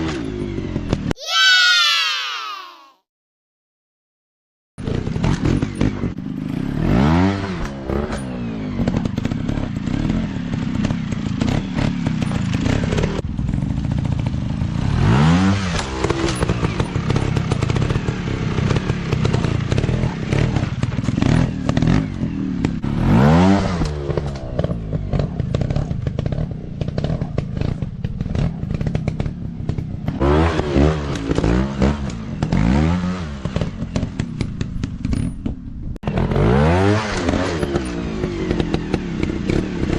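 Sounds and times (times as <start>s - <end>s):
dirt bike engines revving: 4.8s - 35.3s, 36.0s - 39.9s.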